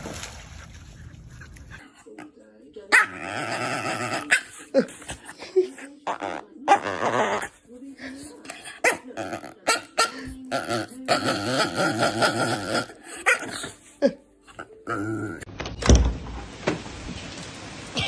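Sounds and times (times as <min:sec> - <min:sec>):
dog barking and growling: 0:01.7 - 0:07.7, 0:08.5 - 0:15.5
dog drawn-out vocal: 0:02.9 - 0:07.6, 0:08.5 - 0:13.9.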